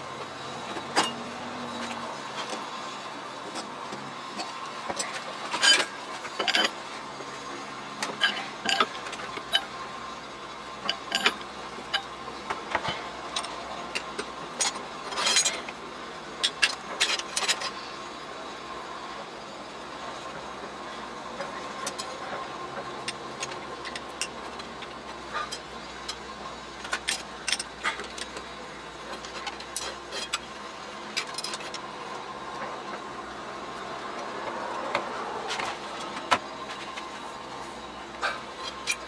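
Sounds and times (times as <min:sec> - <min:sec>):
metal clicks and clinks: 0:10.8 - 0:12.1.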